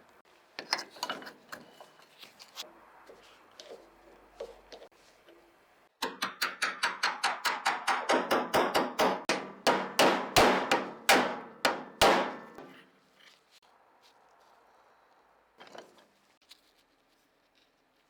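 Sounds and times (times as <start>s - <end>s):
hammer blows: 6.0s - 12.9s.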